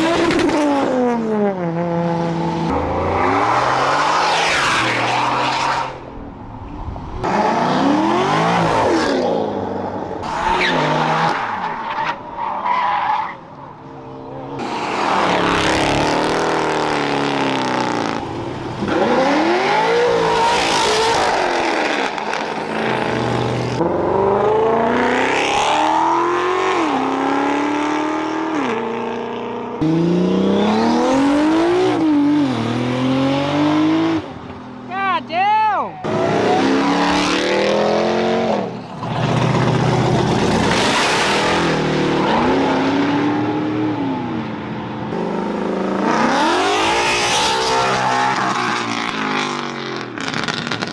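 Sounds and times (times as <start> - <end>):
car engines revving: 0.0 - 34.9, 36.0 - 50.9
tire squeal: 10.2 - 13.5.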